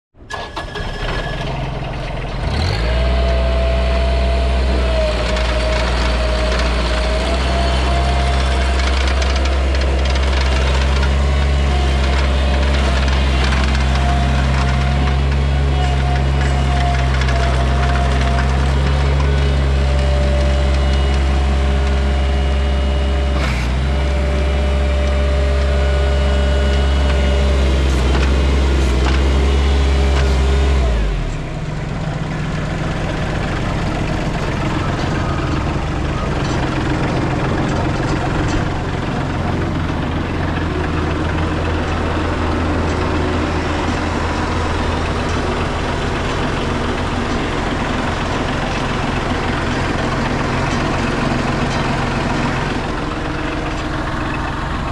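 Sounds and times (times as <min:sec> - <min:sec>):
diesel engine running: 0:00.2 - 0:54.9.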